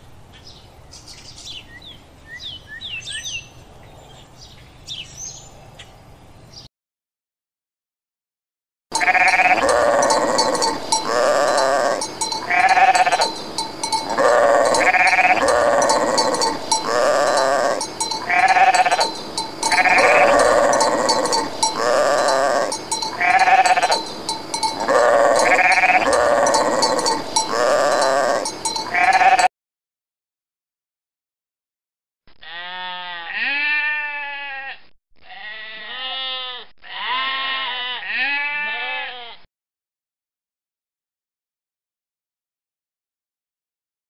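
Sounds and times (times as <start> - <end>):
goats bleating: 9.0 - 29.5, 32.4 - 39.4.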